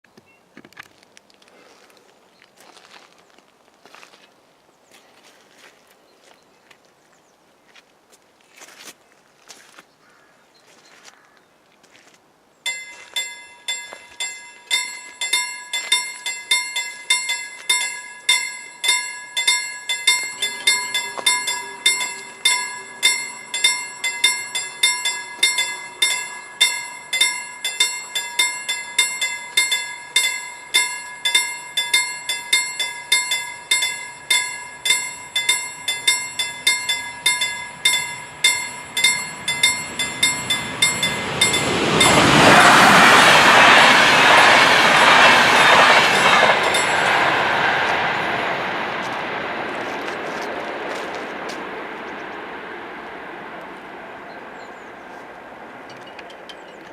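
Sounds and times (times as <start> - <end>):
level crossing warning bell: 12.7 - 48.8
approaching train noise: 12.7 - 56.9.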